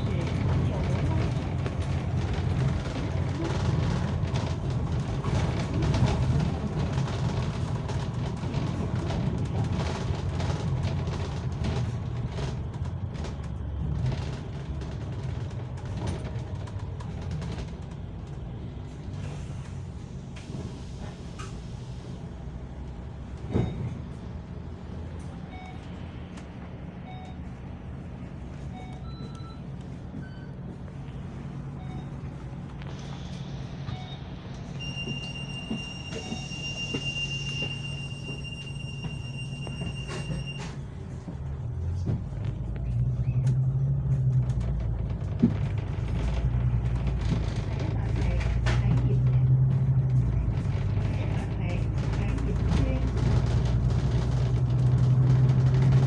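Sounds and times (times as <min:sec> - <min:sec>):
train running rumble: 0:00.0 - 0:56.0
short electronic beeps: 0:33.9 - 0:40.6.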